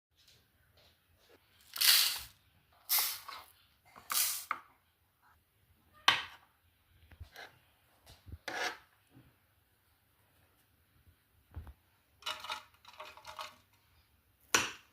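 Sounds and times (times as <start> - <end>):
scraping strokes: 8.4 - 8.9.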